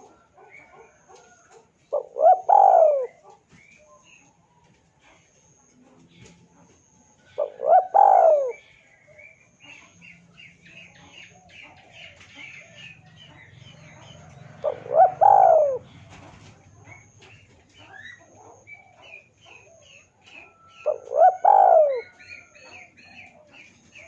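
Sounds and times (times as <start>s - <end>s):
dove cooing: 0.0s - 3.4s, 7.1s - 9.9s, 11.2s - 24.0s
small birds chirping: 0.0s - 24.0s.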